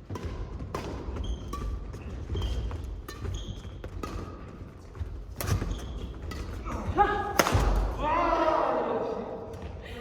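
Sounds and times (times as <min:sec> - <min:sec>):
shoes squeaking on court floor: 0:00.0 - 0:07.0
racket hitting shuttlecock: 0:00.0 - 0:08.0.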